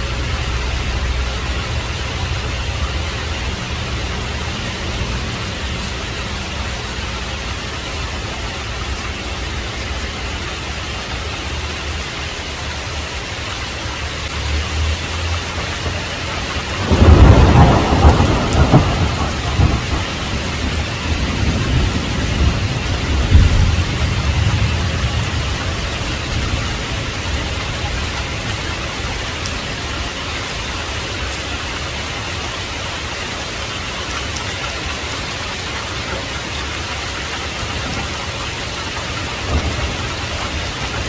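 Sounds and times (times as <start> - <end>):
heavy rain: 0.0 - 41.0
low thunder rumble: 15.7 - 30.0, 37.2 - 41.0
loud thunderclap: 15.9 - 28.6, 37.6 - 41.0.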